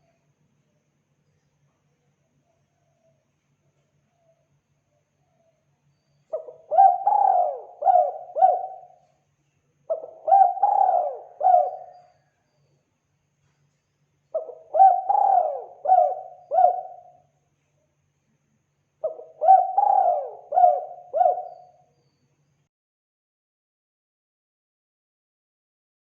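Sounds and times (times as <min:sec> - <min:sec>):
dove cooing: 0:06.3 - 0:09.0, 0:09.9 - 0:12.1, 0:14.4 - 0:17.2, 0:19.0 - 0:21.7.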